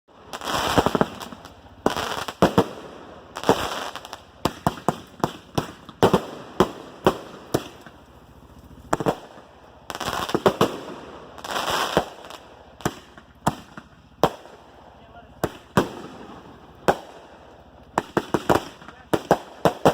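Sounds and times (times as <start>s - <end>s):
fireworks bangs and pops: 0.1s - 19.9s
fireworks hissing bursts: 0.1s - 19.9s.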